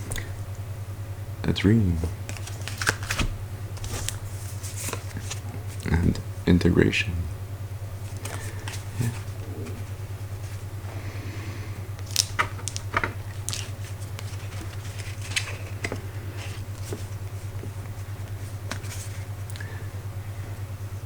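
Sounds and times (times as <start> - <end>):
low pulsing hum: 0.0 - 21.0
cards clicking and tapping: 2.0 - 5.4, 8.1 - 9.8, 12.0 - 19.7.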